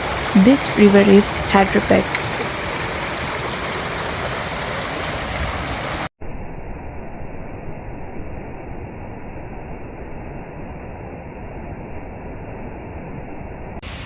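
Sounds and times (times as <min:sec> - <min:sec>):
stream rushing over rocks: 0:00.0 - 0:06.1.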